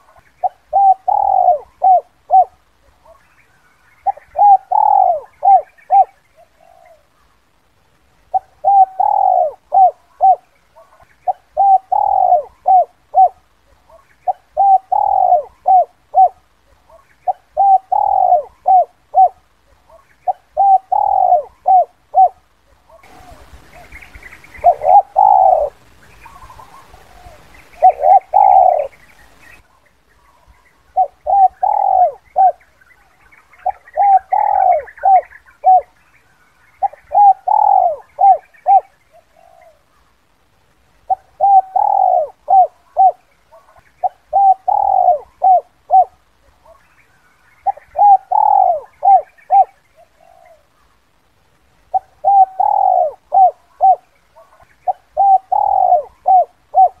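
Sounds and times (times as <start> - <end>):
dove cooing: 0.0 - 7.4, 8.3 - 36.0, 36.8 - 40.1, 41.0 - 46.9, 47.5 - 51.0, 51.9 - 57.0.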